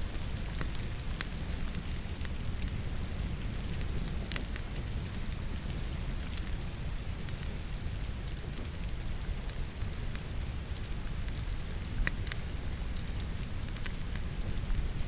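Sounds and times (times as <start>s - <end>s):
logs crackling in fireplace: 0.0s - 15.0s
steady rain: 0.0s - 15.0s.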